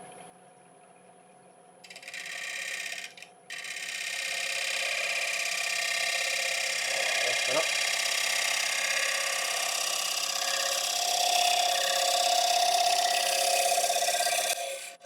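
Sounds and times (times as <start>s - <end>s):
wood lathe running: 1.9s - 15.0s
gouge cutting wood with hiss: 5.4s - 15.0s.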